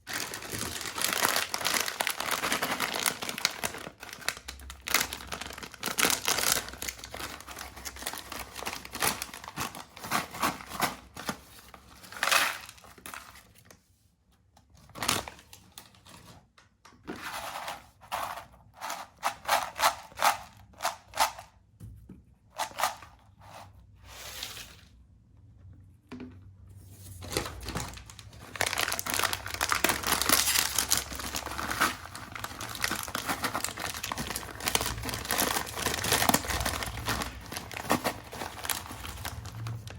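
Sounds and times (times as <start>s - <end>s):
plastic packets crinkling and tearing: 0.0s - 13.8s, 14.8s - 16.1s, 27.2s - 39.9s.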